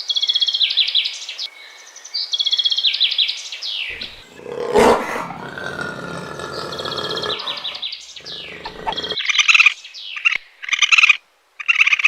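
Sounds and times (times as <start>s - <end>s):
high-pitched animal calls: 3.9s - 9.4s.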